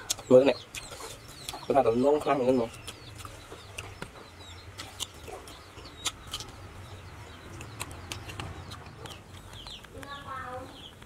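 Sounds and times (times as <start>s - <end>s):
mouth clicks from chewing: 0.0s - 1.7s, 2.7s - 6.6s, 7.5s - 10.0s
small birds chirping: 0.0s - 11.0s.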